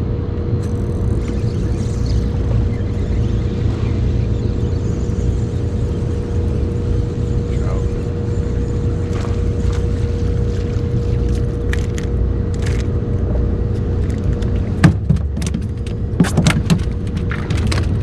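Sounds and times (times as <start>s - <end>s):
boat motor running: 0.6s - 18.0s
sharp knocks: 14.8s - 16.9s.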